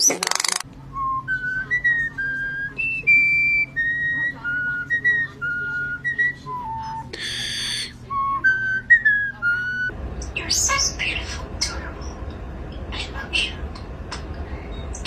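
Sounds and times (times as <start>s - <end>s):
starling whistling: 0.9s - 12.3s.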